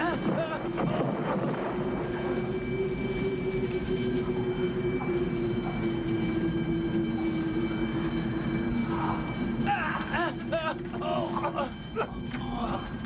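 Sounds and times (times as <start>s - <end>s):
tornado wind roaring and howling: 0.0s - 13.0s.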